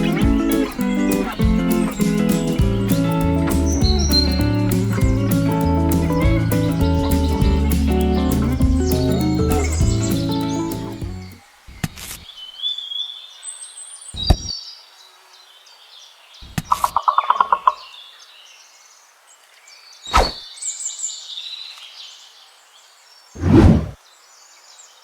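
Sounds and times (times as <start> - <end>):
quick run of ticks: 0.0 - 11.4
small birds chirping: 0.0 - 25.0.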